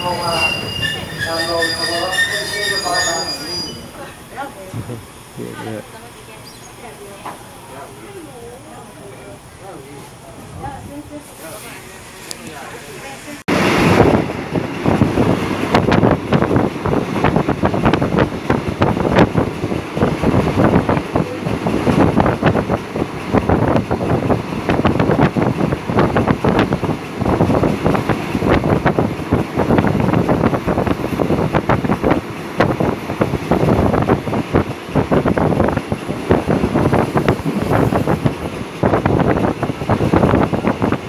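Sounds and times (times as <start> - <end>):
wind rushing on microphone: 13.5 - 41.0.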